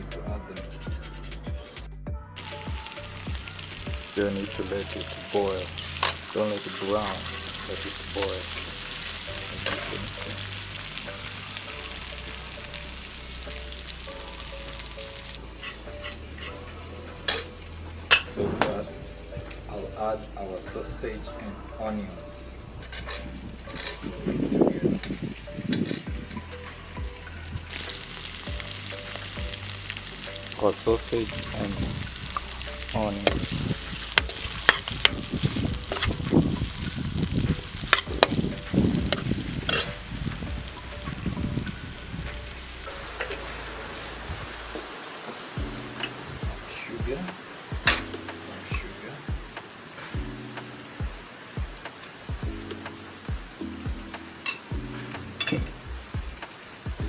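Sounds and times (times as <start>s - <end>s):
food sizzling in hot oil: 2.4s - 57.0s
utensil scraping a pan: 15.6s - 17.5s, 39.1s - 40.0s.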